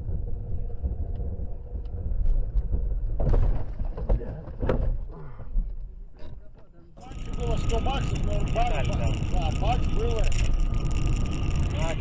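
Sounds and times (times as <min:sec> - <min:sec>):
car engine and road noise: 0:07.0 - 0:12.0.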